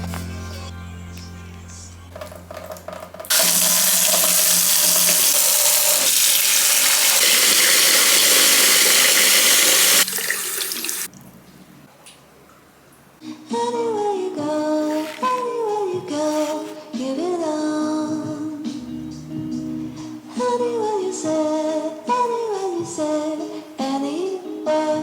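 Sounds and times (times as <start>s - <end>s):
tap running into a sink: 2.6s - 11.1s
water trickle: 3.3s - 11.3s.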